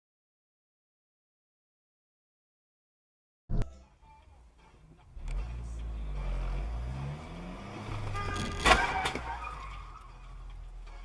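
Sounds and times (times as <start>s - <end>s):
car engine accelerating: 5.0s - 11.0s
loud vehicle crash: 7.9s - 10.1s.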